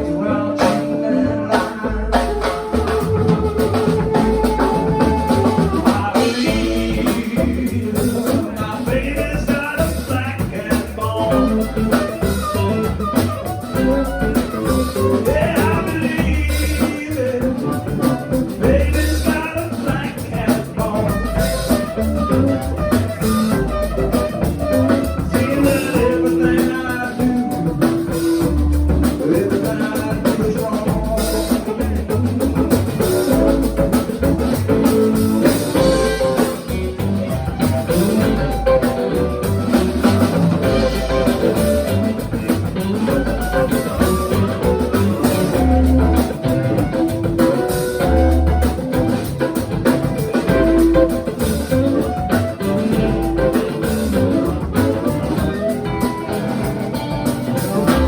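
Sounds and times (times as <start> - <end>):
bass guitar: 0.0 - 58.0
blues guitar lines: 0.0 - 58.0
drum kit steady beat: 0.0 - 58.0.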